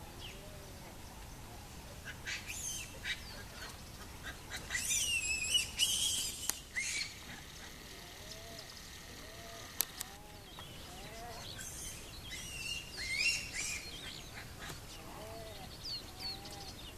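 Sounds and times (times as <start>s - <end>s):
lower arching bird calls: 2.0s - 16.9s
bright bird chirps and whistles: 4.7s - 7.2s, 11.6s - 14.0s.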